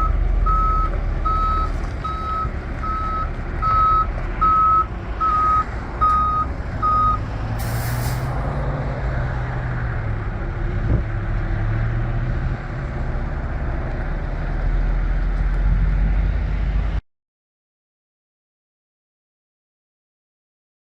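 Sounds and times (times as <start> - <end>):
truck backup alarm beeps: 0.0 - 7.2
truck engine running: 0.0 - 8.5
air brakes hiss: 7.6 - 8.4.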